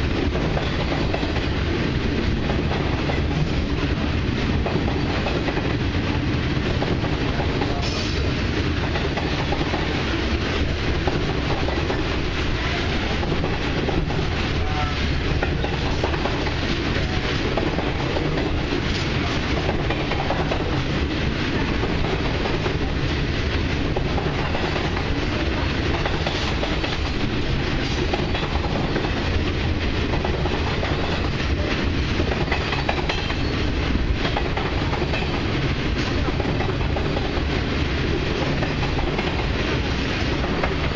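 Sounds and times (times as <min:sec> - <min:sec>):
freight train rolling past: 0:00.0 - 0:40.9.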